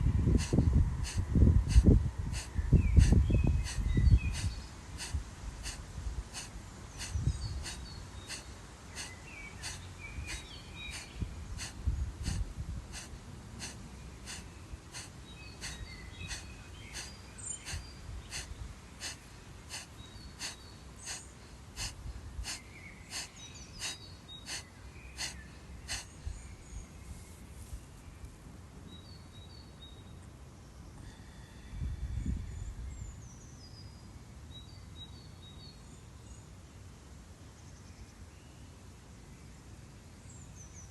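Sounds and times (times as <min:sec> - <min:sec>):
rapid forceful nasal exhalations: 0:00.0 - 0:26.4.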